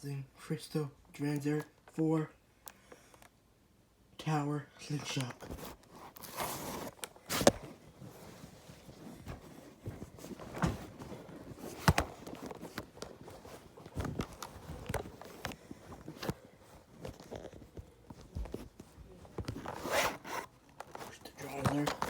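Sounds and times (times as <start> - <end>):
faint rustling: 4.8 - 22.0.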